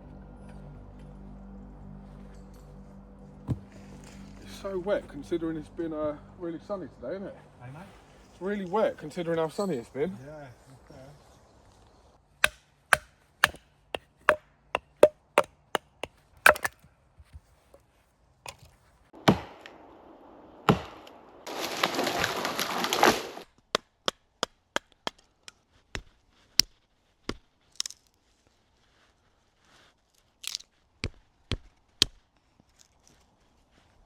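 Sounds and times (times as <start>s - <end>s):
wood being chopped: 3.5s - 3.8s, 12.4s - 15.2s, 15.8s - 16.8s.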